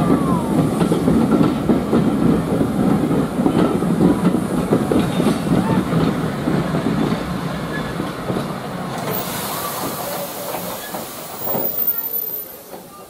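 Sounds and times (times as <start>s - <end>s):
train wheels knocking and clicking: 0.1s - 13.0s
steady hiss: 9.0s - 13.0s.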